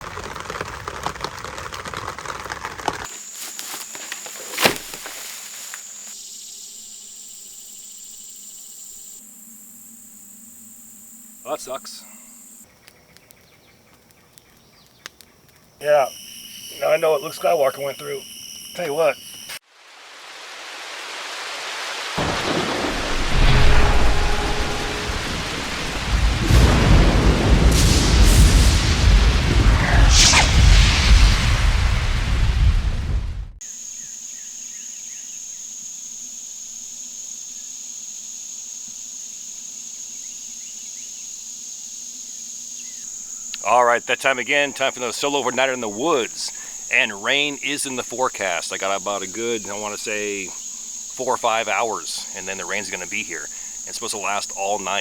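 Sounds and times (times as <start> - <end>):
insects trilling: 0.0 - 31.4, 33.6 - 55.0
heavy rain hissing: 18.8 - 33.4, 43.6 - 55.0
dense crackling noise: 21.6 - 33.6
thunder rumbling: 22.2 - 33.6.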